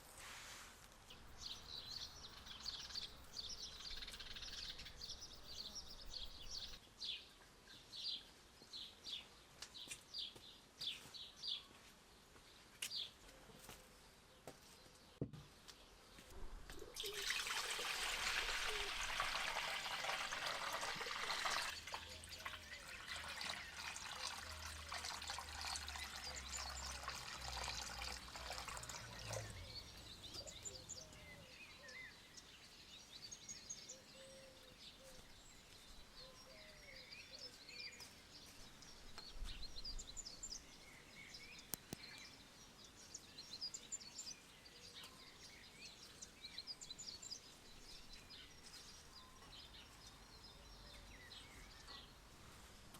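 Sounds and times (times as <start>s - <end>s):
small birds chirping: 0.9s - 52.9s
running water: 16.7s - 30.7s.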